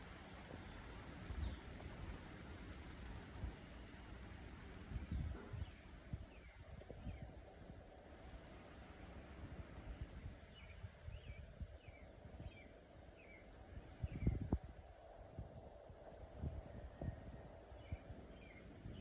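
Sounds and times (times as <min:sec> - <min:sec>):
wind buffeting microphone: 0:00.0 - 0:08.5, 0:13.7 - 0:19.0.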